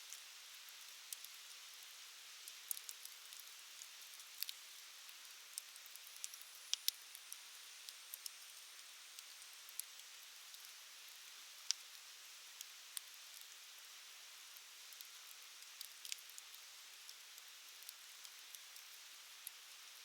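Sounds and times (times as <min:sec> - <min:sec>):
soft hiss of flame: 0:00.0 - 0:20.0
burning wood crackling and popping: 0:02.4 - 0:08.5, 0:14.9 - 0:19.6.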